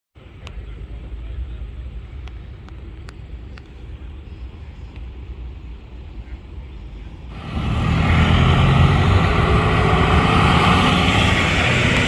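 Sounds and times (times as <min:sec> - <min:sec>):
motorcycle engines running: 0:07.3 - 0:12.0.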